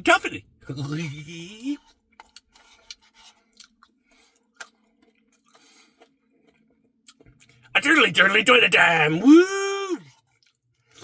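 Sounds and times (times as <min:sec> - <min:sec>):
soft chewing with wet clicks: 0:01.7 - 0:07.6, 0:10.1 - 0:11.0.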